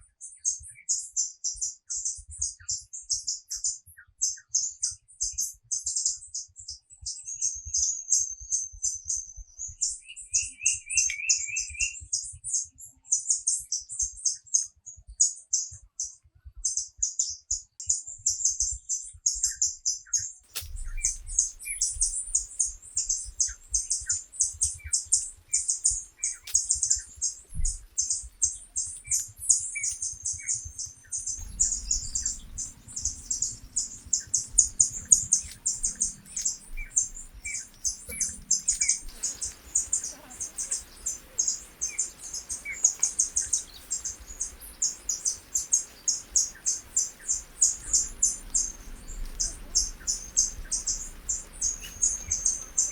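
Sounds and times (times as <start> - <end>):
high-pitched chirping: 20.7 - 52.9.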